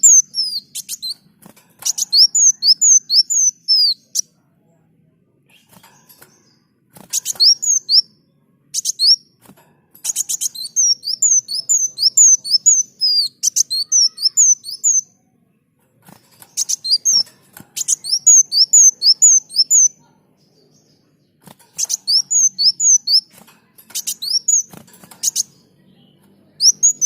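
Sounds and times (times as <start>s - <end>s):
hummingbird singing rapid chirps: 0.0s - 4.2s, 7.2s - 9.3s, 10.1s - 15.1s, 16.4s - 20.9s, 21.5s - 27.0s.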